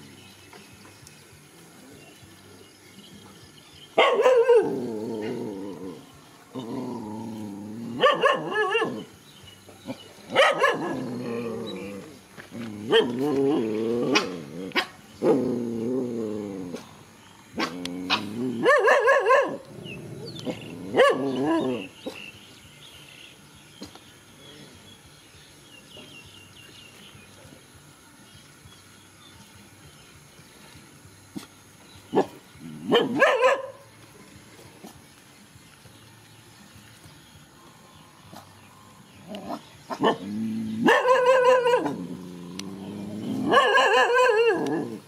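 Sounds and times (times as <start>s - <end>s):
dogs barking: 3.9s - 6.0s, 7.8s - 9.2s, 9.9s - 15.8s, 16.6s - 22.3s, 32.1s - 33.9s, 39.3s - 42.2s, 43.2s - 45.0s
dogs growling: 4.2s - 9.2s, 9.8s - 22.3s, 32.1s - 33.6s, 39.1s - 45.0s.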